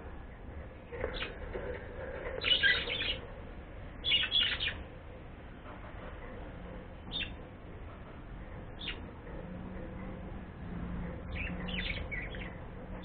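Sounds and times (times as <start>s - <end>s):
bird harsh scratchy calls: 1.0s - 3.2s, 4.0s - 4.8s.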